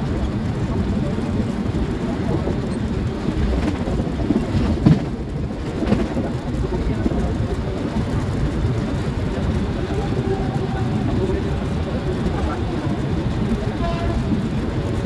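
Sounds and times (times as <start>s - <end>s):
train rumbling: 0.0s - 15.0s
indistinct voices: 6.2s - 15.0s.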